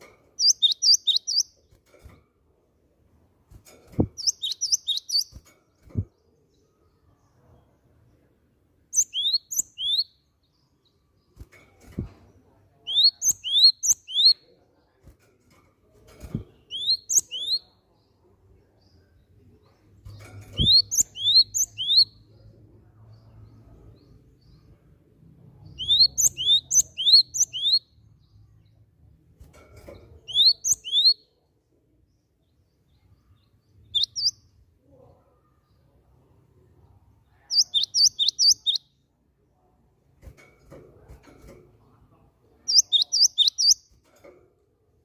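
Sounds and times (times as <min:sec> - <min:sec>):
bird singing high whistled notes: 0:00.4 - 0:01.5, 0:04.2 - 0:05.3, 0:09.0 - 0:10.2, 0:20.6 - 0:22.2, 0:25.8 - 0:27.9, 0:30.3 - 0:31.2, 0:33.9 - 0:34.4, 0:37.5 - 0:38.9, 0:42.7 - 0:43.8.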